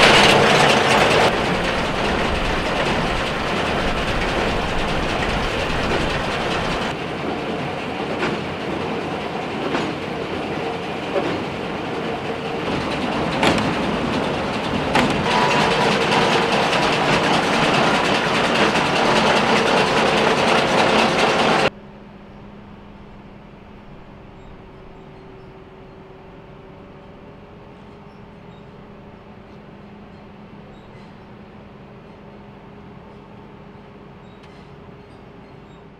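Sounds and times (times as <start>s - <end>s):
low hum: 0.0s - 8.0s
baler clattering with regular knock: 12.4s - 21.7s.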